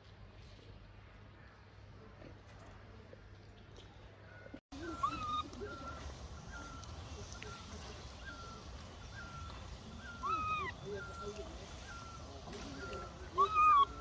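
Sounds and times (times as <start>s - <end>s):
baby monkey crying: 4.8s - 14.0s
baby monkey squeaking: 4.8s - 14.0s.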